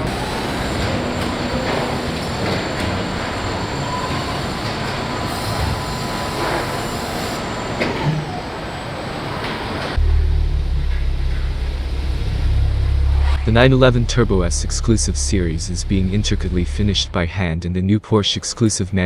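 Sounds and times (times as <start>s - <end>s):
factory machinery rumbling: 0.0s - 18.1s
deep steady hum: 9.9s - 17.9s.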